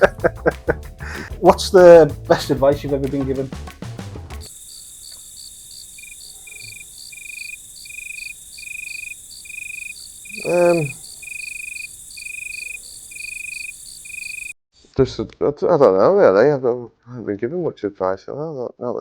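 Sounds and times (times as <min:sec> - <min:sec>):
crickets chirping: 0:04.4 - 0:14.6
faint hiss: 0:04.4 - 0:15.0.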